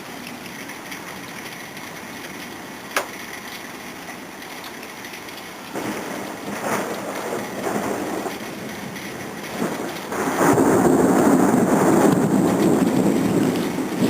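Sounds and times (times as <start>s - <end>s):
thunder rumbling: 5.0s - 14.0s.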